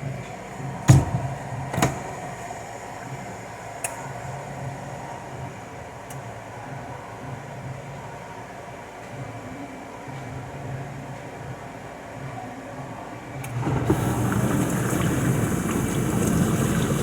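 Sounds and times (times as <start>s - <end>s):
appliance humming: 13.5s - 17.0s.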